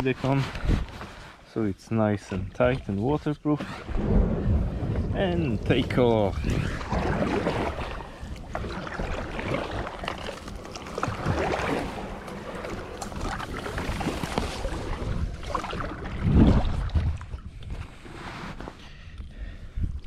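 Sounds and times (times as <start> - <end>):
paddle splashing in water: 3.6 - 18.5
wind on microphone: 3.7 - 10.1, 11.1 - 18.2.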